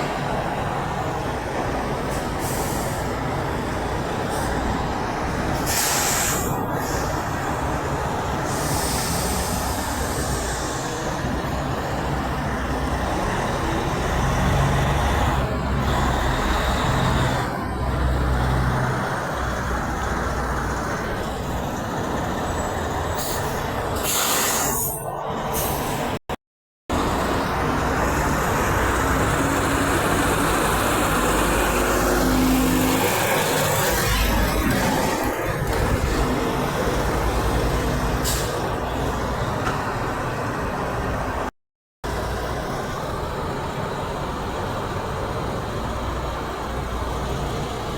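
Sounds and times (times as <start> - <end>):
truck engine and tyre noise: 0.0 - 47.9
air brake hisses: 5.6 - 7.1, 8.5 - 11.0, 23.2 - 25.0, 38.2 - 38.7.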